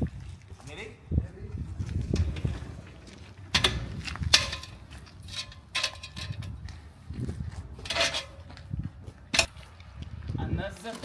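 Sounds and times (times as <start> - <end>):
metallic knocks and clanks: 3.5 - 6.7, 7.8 - 8.6, 9.3 - 9.6.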